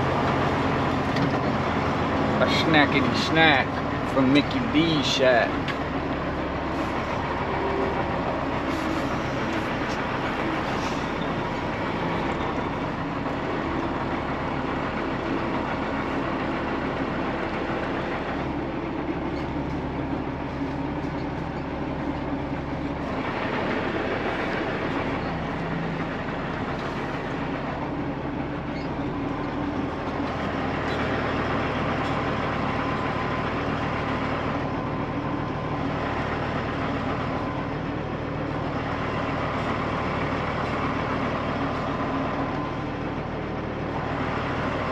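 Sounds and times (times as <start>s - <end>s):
truck diesel engine running: 0.0s - 44.9s.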